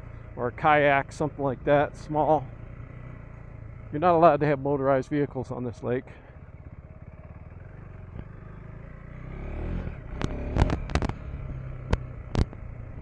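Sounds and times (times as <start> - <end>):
dirt bike engine revving: 7.0 - 13.0
knocks and clatters: 10.1 - 12.7.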